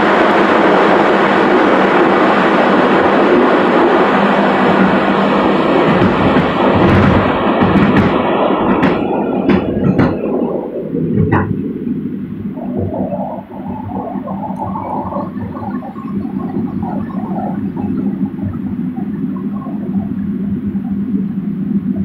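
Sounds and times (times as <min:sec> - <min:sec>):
train carriage rumbling: 0:00.0 - 0:22.0.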